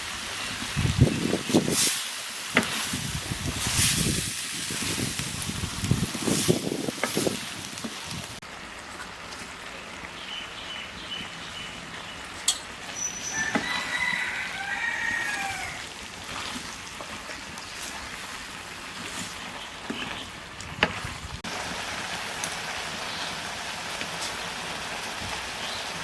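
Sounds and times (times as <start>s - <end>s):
steady hiss: 0.0s - 8.4s
bird chirps: 12.9s - 13.5s
bird call with bending notes: 12.9s - 13.8s.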